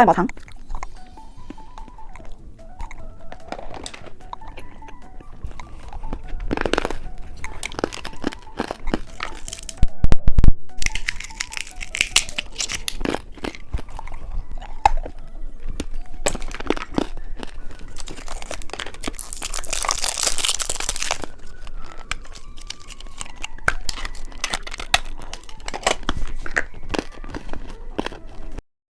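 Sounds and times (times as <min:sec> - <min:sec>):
plastic wrappers crinkling: 0:05.4 - 0:09.8, 0:10.8 - 0:15.0, 0:15.8 - 0:28.6
wrapper tearing rustle: 0:10.8 - 0:13.7, 0:17.8 - 0:27.7.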